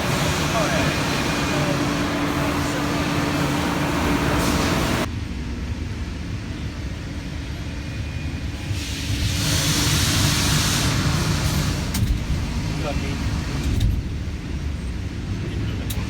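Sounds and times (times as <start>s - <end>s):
loud hiss: 0.0s - 5.1s, 8.6s - 13.7s
heavy machinery running: 0.0s - 6.3s.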